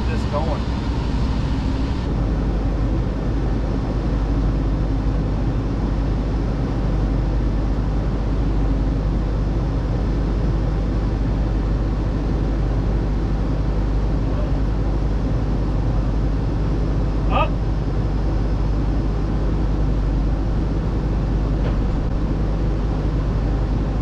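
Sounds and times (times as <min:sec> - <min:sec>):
diesel engine running steadily: 0:00.0 - 0:24.0.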